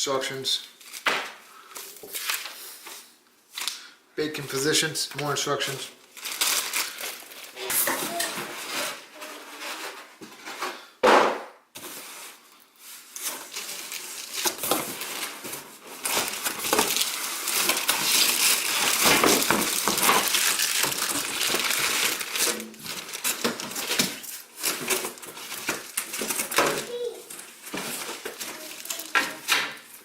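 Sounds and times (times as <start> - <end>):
plastic wrap and cardboard rustling: 0.3 - 3.8, 5.5 - 11.0, 11.7 - 30.0
packaging being handled: 6.0 - 9.9, 12.9 - 30.0.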